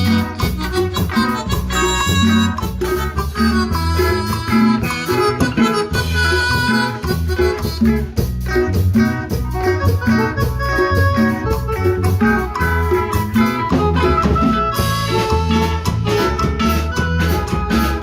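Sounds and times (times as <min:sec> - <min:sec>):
latin dance band playing: 0:00.0 - 0:18.0.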